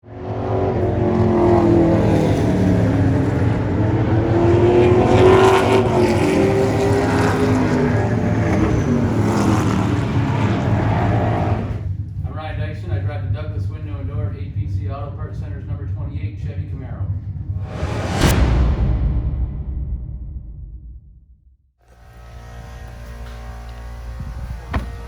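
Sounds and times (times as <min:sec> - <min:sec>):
racing car engine running hard: 0:00.0 - 0:11.9.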